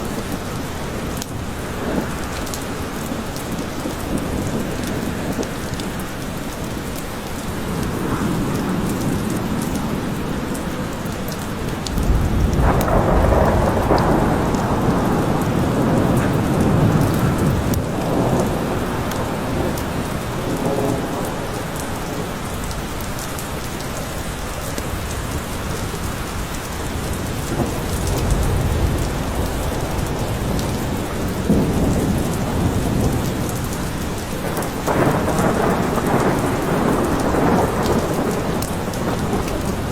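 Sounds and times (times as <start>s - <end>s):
steady rain falling: 0.0s - 39.9s
rolling thunder: 7.6s - 23.0s, 24.8s - 39.9s.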